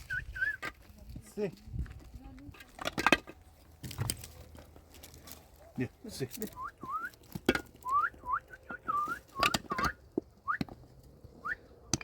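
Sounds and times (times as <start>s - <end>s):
person whistling for dog: 0.0s - 0.6s, 6.6s - 7.2s, 7.8s - 10.7s.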